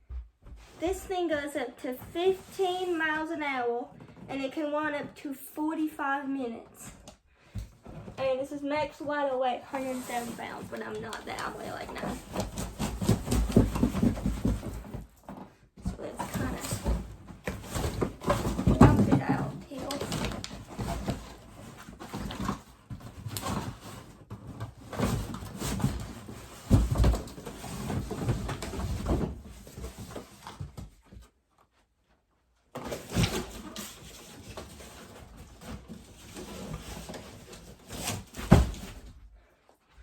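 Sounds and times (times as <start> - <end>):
cardboard rustling and scraping: 0.0 - 5.2, 6.9 - 39.6
thumps and knocks: 10.3 - 31.3.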